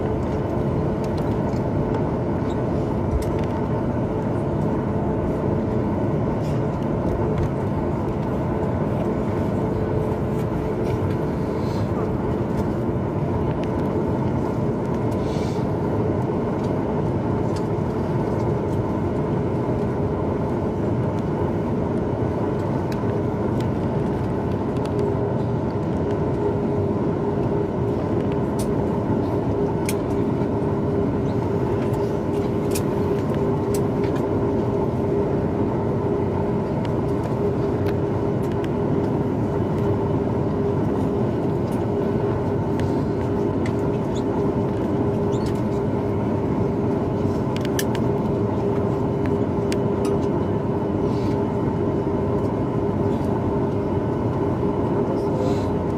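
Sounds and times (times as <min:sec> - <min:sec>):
aircraft cabin engine rush: 0:00.0 - 0:55.9
steady hum: 0:00.0 - 0:55.9.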